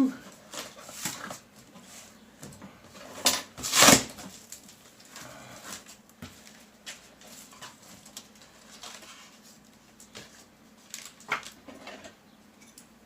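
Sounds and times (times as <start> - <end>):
cardboard parcel rustling: 0.2 - 2.2, 2.9 - 12.0.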